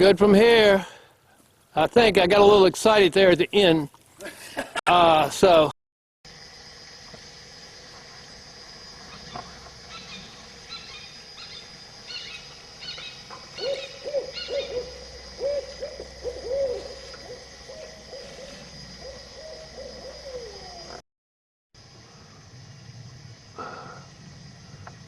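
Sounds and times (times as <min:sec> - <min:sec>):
outdoor background noise: 0:00.0 - 0:21.0, 0:21.8 - 0:25.0
lower arching bird notes: 0:09.1 - 0:21.0
short high bird calls: 0:09.9 - 0:20.9.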